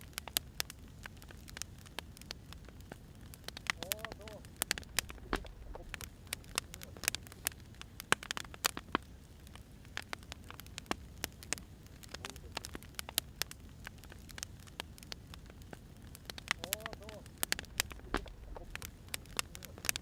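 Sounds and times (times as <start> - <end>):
firewood popping and snapping: 0.0 - 20.0
low steady rumble: 2.2 - 8.4, 10.6 - 20.0.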